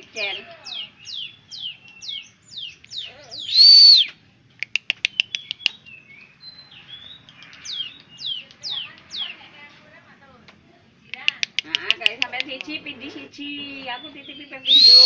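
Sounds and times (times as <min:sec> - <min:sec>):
bird whistling downward slurs: 0:01.1 - 0:04.2, 0:13.9 - 0:15.0
rapid sharp bird ticks: 0:01.1 - 0:09.5, 0:11.0 - 0:12.8
loud arched bird whistle: 0:03.4 - 0:04.1, 0:14.6 - 0:15.0.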